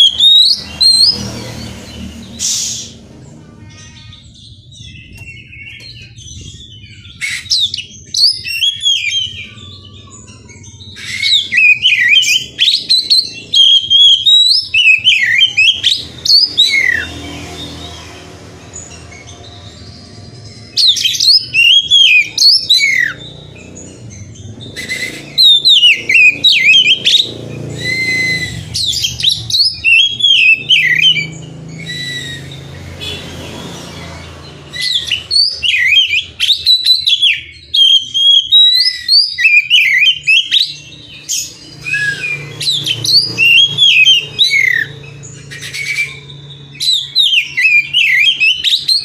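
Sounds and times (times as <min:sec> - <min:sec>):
magpie-robin singing: 0:00.0 - 0:49.0.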